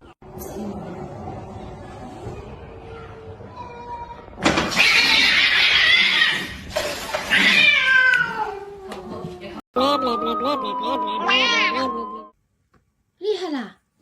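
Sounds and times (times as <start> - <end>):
cat caterwauling: 4.7 - 6.6, 7.2 - 9.2, 11.2 - 11.8.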